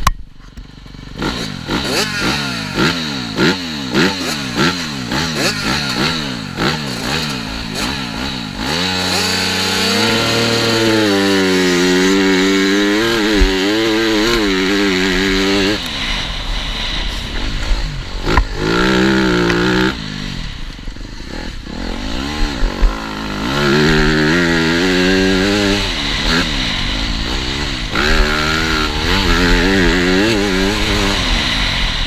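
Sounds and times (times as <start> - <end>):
motocross bike engine revving: 0.4 - 32.0.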